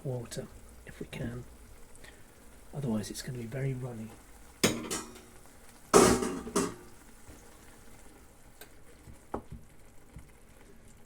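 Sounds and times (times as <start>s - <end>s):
utensil knocking on frying pan: 4.6s - 5.3s, 6.0s - 6.9s.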